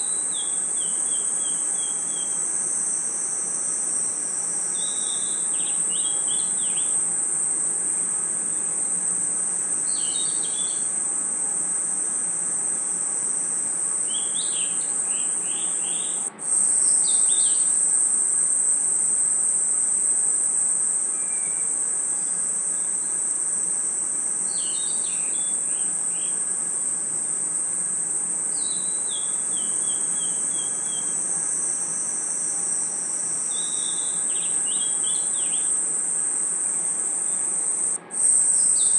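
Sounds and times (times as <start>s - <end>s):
crickets and insects chirring: 0.0s - 38.9s
higher chirping calls: 9.9s - 10.9s, 14.0s - 17.7s.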